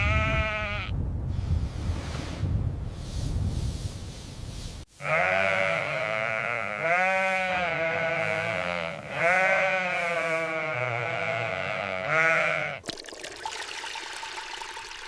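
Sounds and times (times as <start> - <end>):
sheep bleating: 0.0 - 0.9, 5.0 - 12.8
wind rushing: 0.0 - 4.8.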